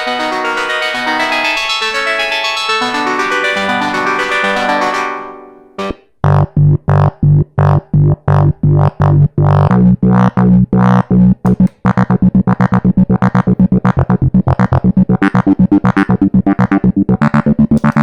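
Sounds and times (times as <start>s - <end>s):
staccato synthesizer bass notes: 0.0s - 18.0s.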